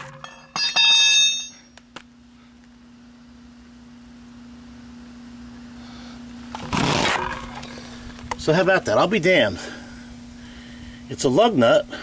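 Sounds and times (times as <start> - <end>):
metallic hubcap clank: 0.0 - 1.7
faint steady hum: 0.0 - 12.0.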